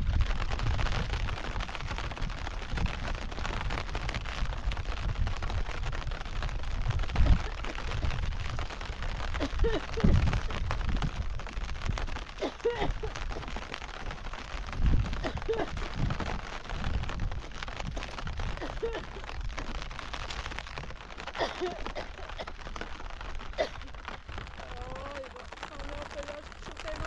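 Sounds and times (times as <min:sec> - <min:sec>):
rain pattering: 0:00.0 - 0:27.0
faint voice-like sounds: 0:23.6 - 0:27.0.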